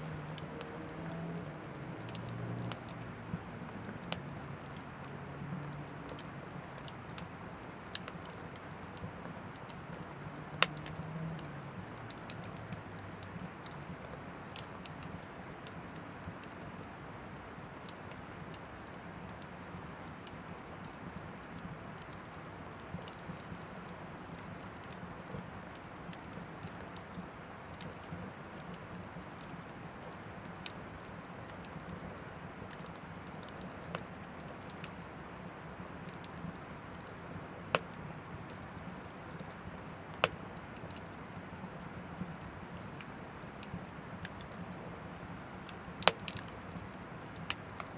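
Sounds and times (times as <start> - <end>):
firewood crackling and popping: 0.0 - 47.9
flame hissing: 45.0 - 47.9.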